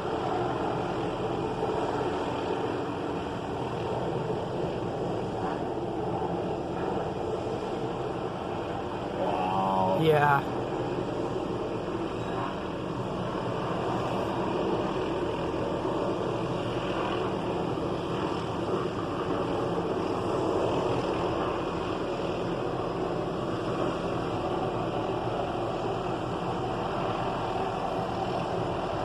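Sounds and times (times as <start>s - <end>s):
steady engine drone: 0.0s - 29.0s.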